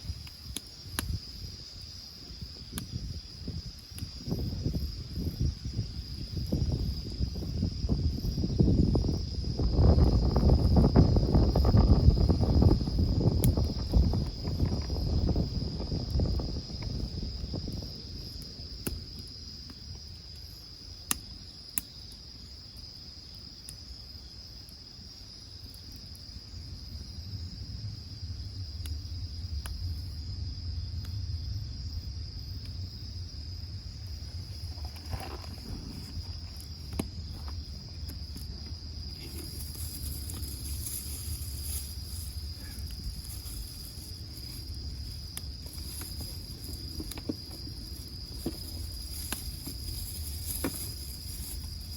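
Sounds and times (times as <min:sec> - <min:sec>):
crickets chirring: 0:00.0 - 0:51.9.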